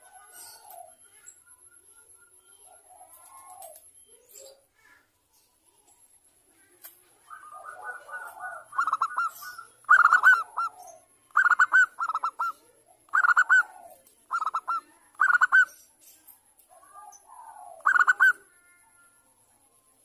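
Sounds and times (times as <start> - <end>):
dove cooing: 0.0 - 1.2, 2.6 - 3.9, 7.2 - 15.7, 16.7 - 18.5.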